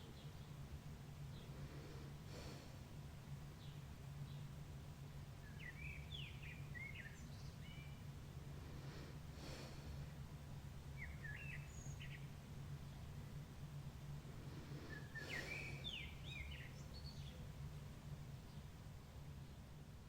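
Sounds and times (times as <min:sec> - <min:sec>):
steady low hum: 0:00.0 - 0:20.0
birds chirping and singing: 0:05.4 - 0:08.0, 0:14.9 - 0:17.4.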